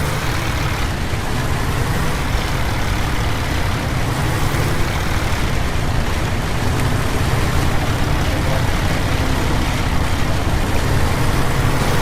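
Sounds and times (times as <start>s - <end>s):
bus engine drone: 0.0s - 12.0s.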